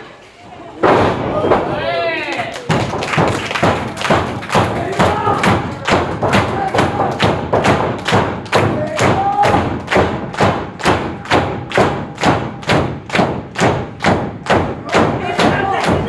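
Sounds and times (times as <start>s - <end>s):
rhythmic thumps: 2.7s - 16.0s.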